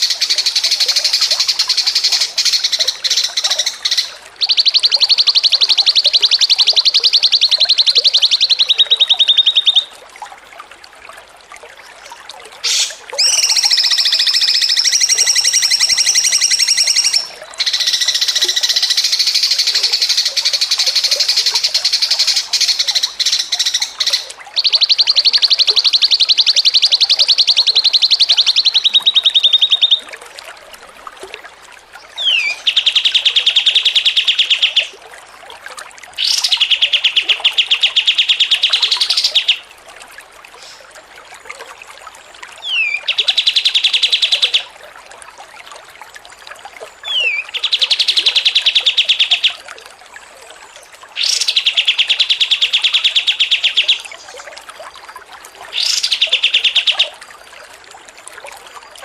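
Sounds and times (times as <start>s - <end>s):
songbird chattering trills: 47.0s - 49.6s.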